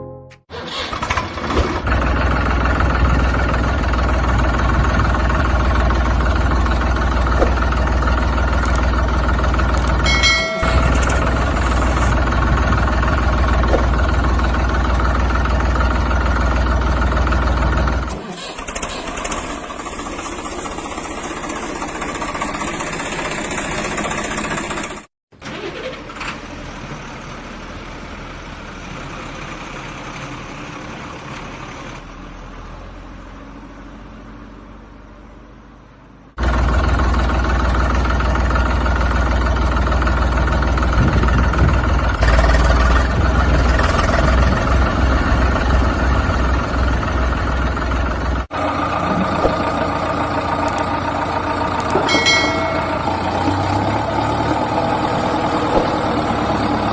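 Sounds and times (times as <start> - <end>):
heavy vehicle engines running: 0.0 - 56.9
loud deep engine running: 0.9 - 25.1, 26.4 - 56.9.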